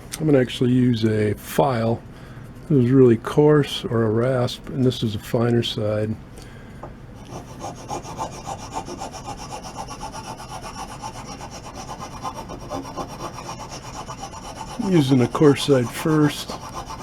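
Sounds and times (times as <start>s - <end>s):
rasp scraping wood: 7.3s - 17.0s.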